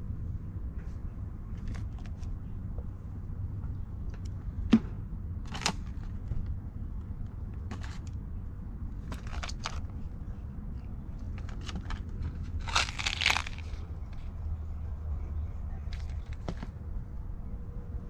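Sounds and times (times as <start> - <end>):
steady low rumble: 0.0 - 18.0
rummaging rustles and clicks: 7.7 - 8.0, 9.0 - 9.9, 11.2 - 14.3, 15.8 - 16.8.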